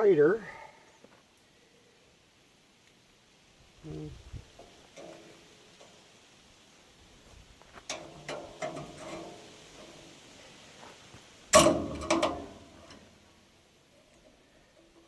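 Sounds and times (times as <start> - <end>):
loud metal clank: 11.5 - 13.0
metal chain clicking and clanking: 11.6 - 13.0.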